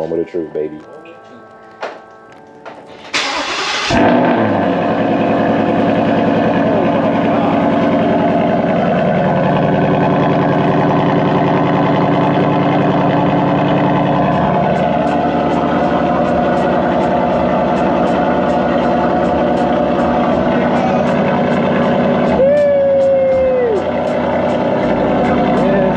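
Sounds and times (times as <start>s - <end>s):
starter motor cranking: 2.9s - 4.7s
car engine fast idle: 2.9s - 25.9s.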